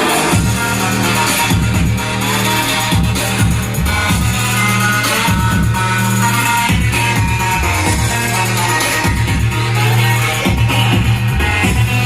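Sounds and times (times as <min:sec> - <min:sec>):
electronic dance music: 0:00.0 - 0:12.0
heavy pulsing bass beat: 0:00.0 - 0:12.0.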